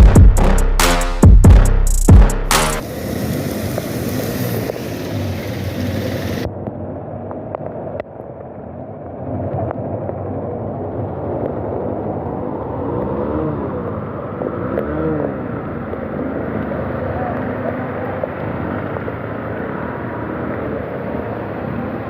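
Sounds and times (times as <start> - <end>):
vehicle engine: 0.0 - 6.6, 11.2 - 22.0
road noise: 0.0 - 22.0.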